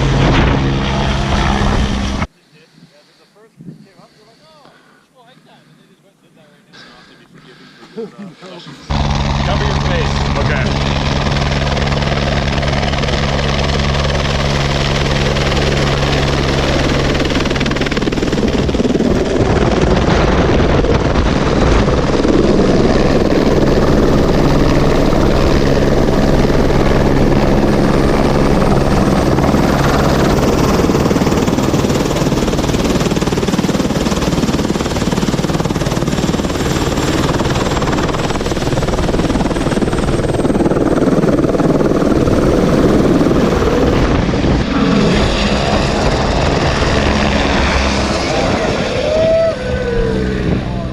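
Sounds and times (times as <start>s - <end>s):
helicopter rotor and turbine drone: 0.0s - 2.3s, 8.3s - 50.9s
wind on microphone: 17.4s - 33.6s, 35.5s - 50.9s
rotor downwash rushing: 36.8s - 50.9s.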